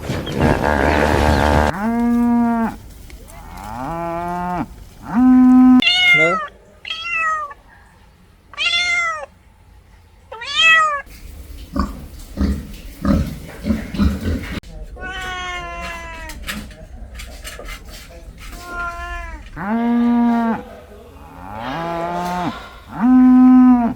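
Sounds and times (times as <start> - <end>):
low-pitched animal calls: 0.1 - 7.9, 18.5 - 23.9
cat meowing: 5.7 - 7.6, 8.5 - 9.3, 10.3 - 11.1, 15.0 - 16.8, 18.5 - 19.7.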